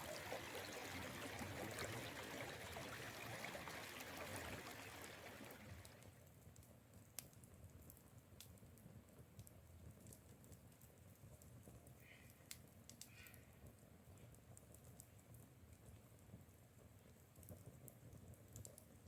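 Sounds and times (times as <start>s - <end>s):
faint ticks and clicks: 5.8s - 19.0s.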